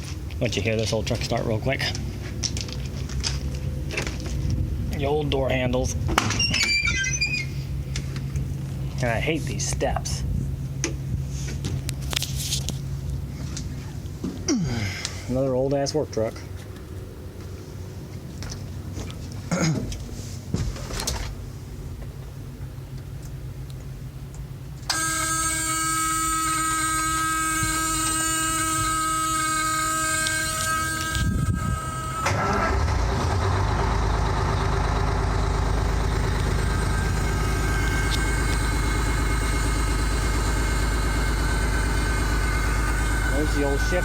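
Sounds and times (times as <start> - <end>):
diesel engine cranking and idling: 0.0 - 44.0
steady buzzing tone: 24.9 - 32.7, 35.4 - 44.0.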